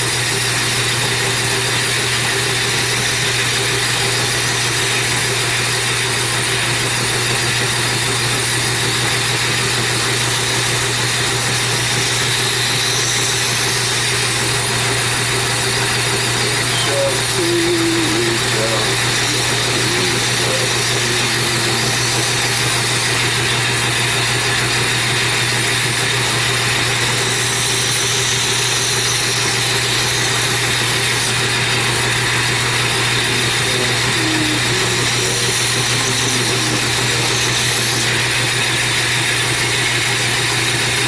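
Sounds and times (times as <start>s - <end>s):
belt grinder motor humming: 11.4s - 41.0s
blade hissing on abrasive belt: 15.1s - 41.0s.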